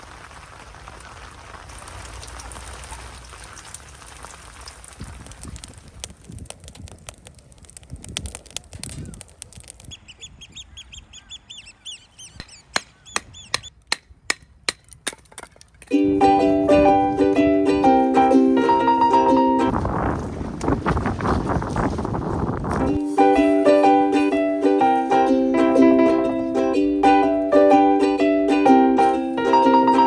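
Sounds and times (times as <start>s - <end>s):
rain: 0.0s - 8.0s
wind: 0.0s - 30.0s
bird calling: 9.9s - 13.9s
sharp taps: 12.4s - 15.9s.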